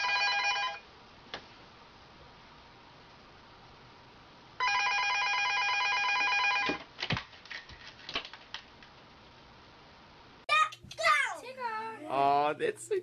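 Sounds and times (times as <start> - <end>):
telephone ringing electronic trill: 0.0 - 0.8, 4.6 - 6.8.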